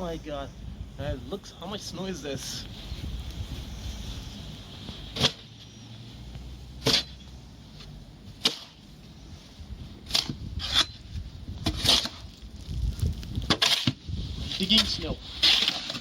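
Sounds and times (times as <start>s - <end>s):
snow shovel scraping snow: 13.6s - 16.0s.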